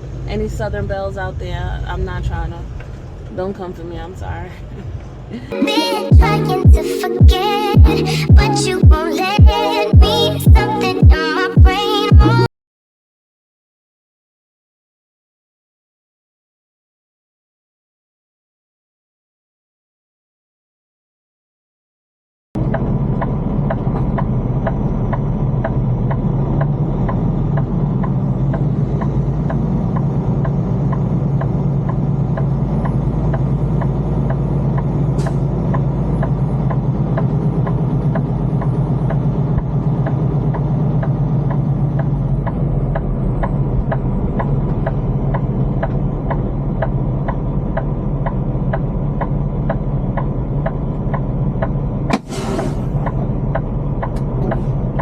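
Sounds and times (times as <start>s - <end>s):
truck engine drone: 0.0s - 3.4s, 4.6s - 12.5s, 22.6s - 55.0s.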